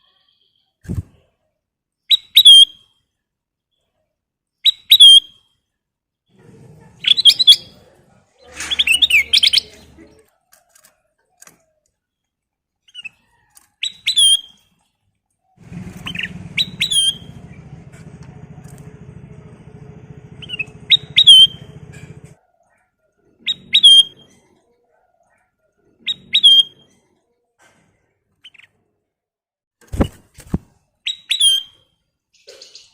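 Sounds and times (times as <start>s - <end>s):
bird calling with whistled notes: 2.1s - 3.0s, 4.6s - 5.4s, 15.7s - 17.7s, 20.3s - 21.8s, 23.5s - 24.3s, 26.1s - 26.8s, 31.1s - 31.8s
low buzzing hum: 15.6s - 22.4s.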